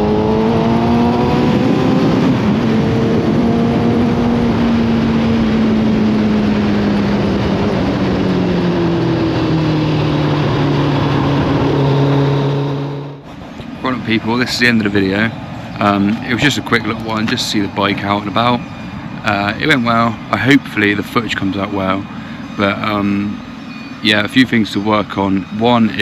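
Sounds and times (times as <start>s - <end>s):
wind noise: 0.0s - 26.0s.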